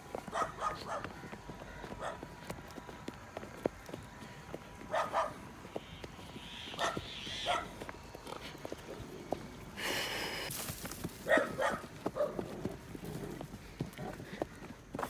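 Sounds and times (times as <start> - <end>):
faint footsteps: 0.0 - 15.0
dog barking in short yaps: 6.8 - 7.7, 11.3 - 12.3.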